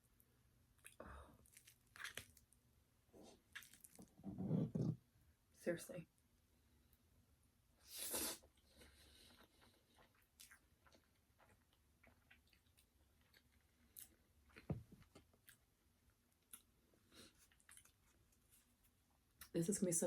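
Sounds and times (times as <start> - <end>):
crunchy bite of fried chicken: 0.8 - 2.5, 3.4 - 4.1
quiet chewing: 0.8 - 2.5, 3.2 - 4.1, 8.2 - 15.7, 16.4 - 19.5.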